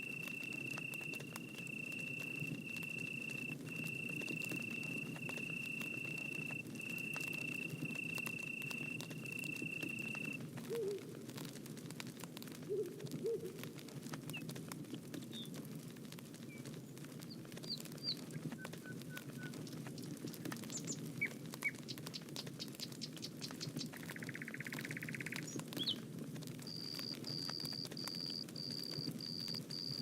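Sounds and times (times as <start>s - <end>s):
small birds chirping: 0.0s - 10.4s, 16.4s - 26.0s, 26.7s - 30.0s
bonfire crackling and popping: 0.0s - 30.0s.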